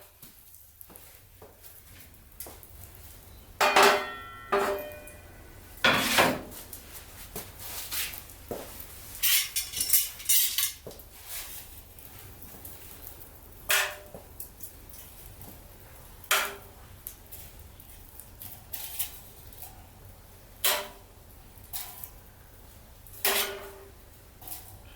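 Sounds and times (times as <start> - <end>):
metal objects clanking and knocking: 3.6 - 5.2, 5.8 - 6.5, 9.2 - 10.8.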